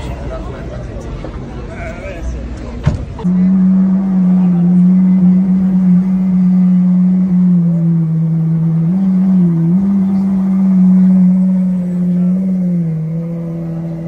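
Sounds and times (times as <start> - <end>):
car engine droning at low revs: 3.1 - 14.0.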